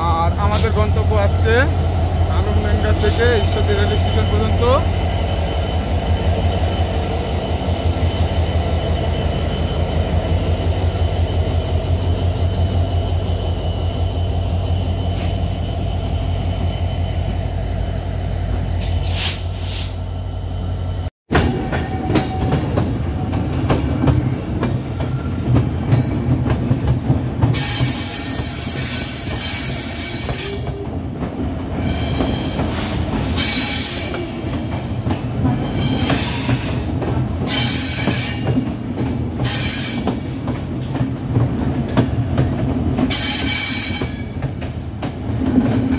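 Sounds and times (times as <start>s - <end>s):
train wheel noise: 0.0s - 20.3s, 21.3s - 45.9s
diesel locomotive engine drone: 0.0s - 23.8s
wheel and brake squeal: 5.5s - 21.0s, 23.4s - 30.8s, 31.8s - 40.3s, 43.1s - 44.4s.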